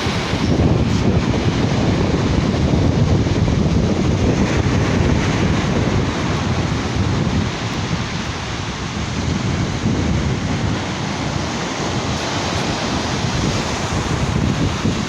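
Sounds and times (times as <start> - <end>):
surf washing on beach: 0.0 - 15.0
wind buffeting microphone: 0.0 - 15.0.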